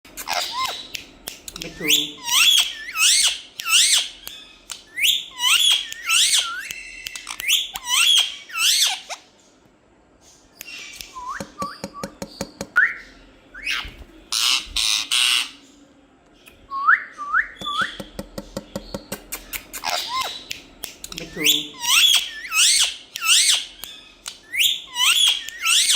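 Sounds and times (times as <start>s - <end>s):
parrot squawks: 0.2s - 0.9s, 1.8s - 9.3s, 13.6s - 15.6s, 19.3s - 20.5s, 21.5s - 25.9s
parrot clicks: 0.2s - 1.9s, 2.5s - 8.0s, 17.6s - 25.9s
parrot whistling: 4.9s - 9.0s, 21.4s - 23.7s, 24.4s - 25.9s.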